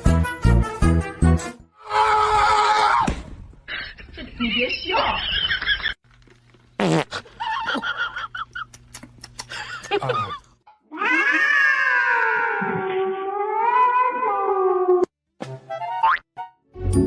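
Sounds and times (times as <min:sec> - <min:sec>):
cat yowling: 0:10.9 - 0:15.1.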